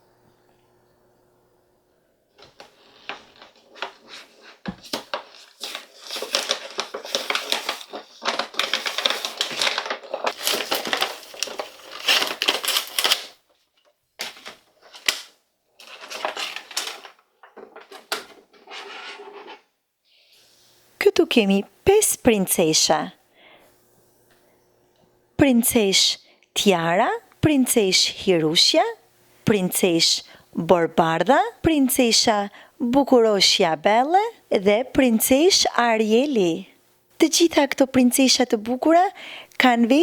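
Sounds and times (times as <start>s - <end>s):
plastic packaging crinkling: 2.4s - 19.6s.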